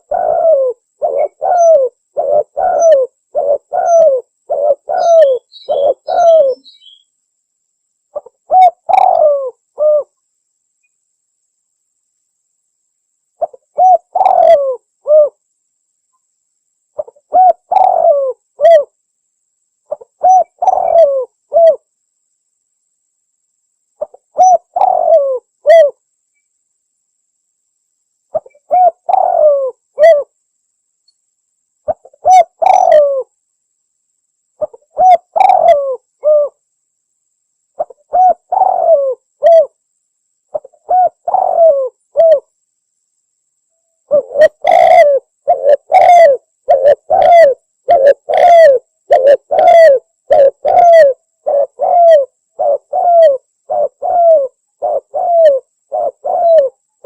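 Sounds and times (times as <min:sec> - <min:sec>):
dove cooing: 0:00.0 - 0:07.0, 0:08.1 - 0:10.1, 0:13.4 - 0:15.4, 0:17.0 - 0:18.9, 0:19.9 - 0:21.9, 0:24.0 - 0:26.0, 0:28.3 - 0:30.3, 0:31.9 - 0:33.3, 0:34.6 - 0:36.6, 0:37.8 - 0:39.8, 0:40.5 - 0:42.5, 0:44.1 - 0:56.8.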